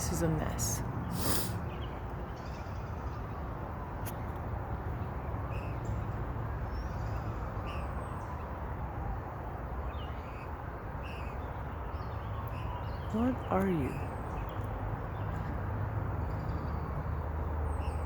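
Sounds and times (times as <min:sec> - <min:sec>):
songbird chirping: 0:09.8 - 0:15.6.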